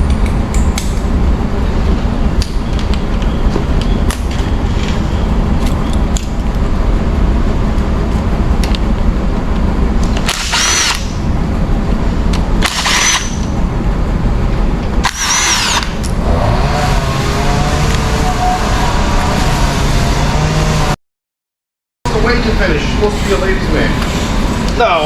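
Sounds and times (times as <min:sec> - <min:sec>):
power tool whining: 0:10.3 - 0:11.1, 0:15.0 - 0:20.9
low background noise: 0:22.1 - 0:25.0.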